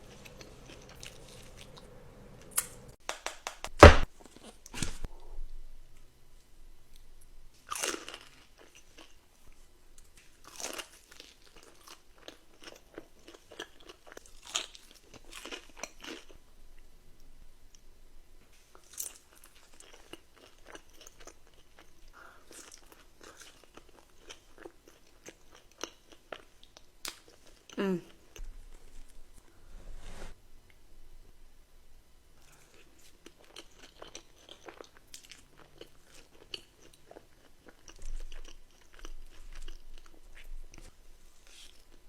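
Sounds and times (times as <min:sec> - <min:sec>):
person crunching and chewing food: 0:00.0 - 0:02.7, 0:06.9 - 0:09.6, 0:10.2 - 0:16.4, 0:18.6 - 0:29.0, 0:32.4 - 0:42.0.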